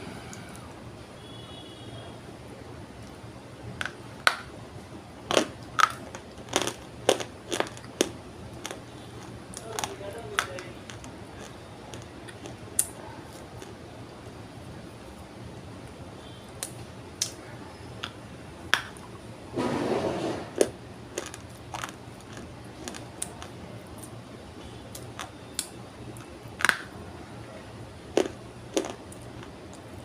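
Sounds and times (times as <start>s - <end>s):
dry clay crunching: 20.3s - 24.1s.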